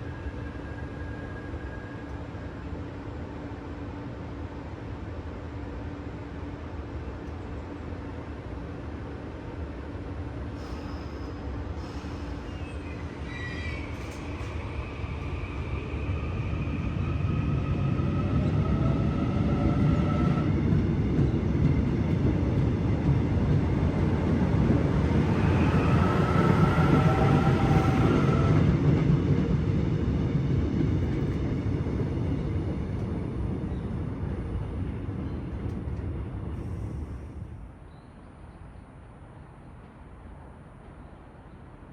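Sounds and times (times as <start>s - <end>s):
train wheels rumbling on rails: 9.9s - 37.9s.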